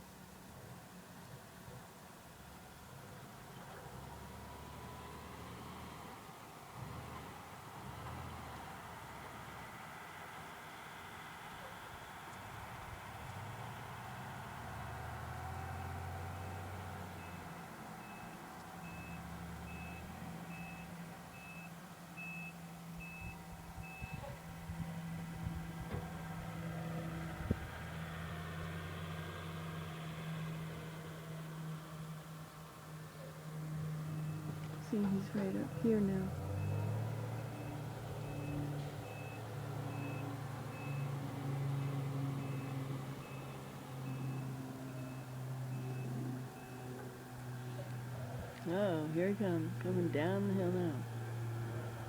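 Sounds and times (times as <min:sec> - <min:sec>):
truck engine running: 0:03.1 - 0:52.0
reverse alarm beeping: 0:18.0 - 0:24.2, 0:35.6 - 0:41.1, 0:42.4 - 0:46.9.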